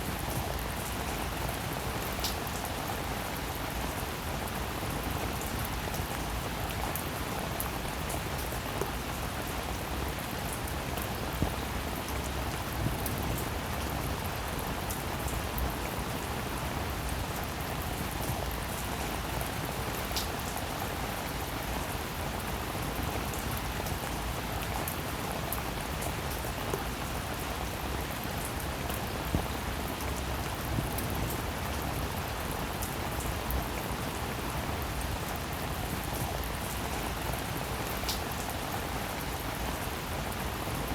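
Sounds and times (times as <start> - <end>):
steady rainfall: 0.0 - 40.9.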